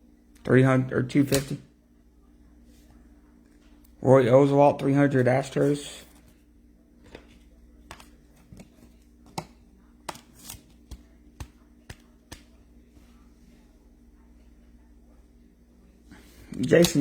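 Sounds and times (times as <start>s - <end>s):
faint steady hum: 0.0s - 17.0s
cards clicking and tapping: 1.3s - 1.6s, 7.9s - 12.6s.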